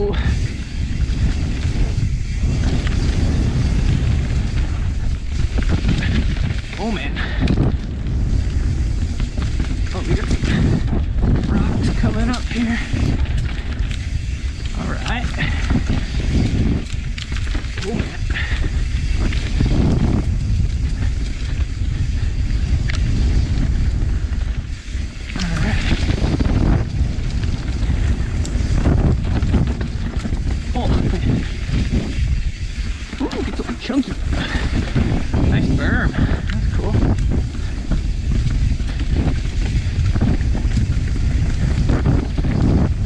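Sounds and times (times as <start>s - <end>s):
bike rattling over rocks: 0.0s - 43.0s
low rumble: 0.0s - 43.0s
wind buffeting microphone: 0.0s - 43.0s
bike clattering over rocks: 5.3s - 21.8s.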